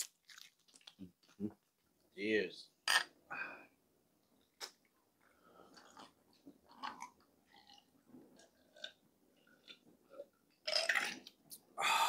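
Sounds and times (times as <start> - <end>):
person chewing crispy food: 0.0 - 1.8, 5.2 - 9.8.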